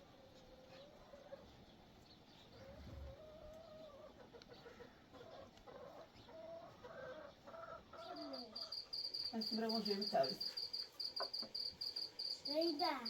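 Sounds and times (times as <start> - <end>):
chickens clucking: 0.0 - 8.9
cricket chirping: 8.1 - 13.0.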